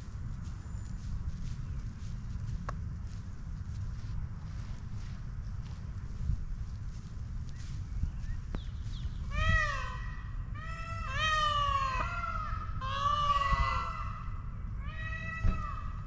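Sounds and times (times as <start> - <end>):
peafowl wailing calls: 9.0 - 16.0.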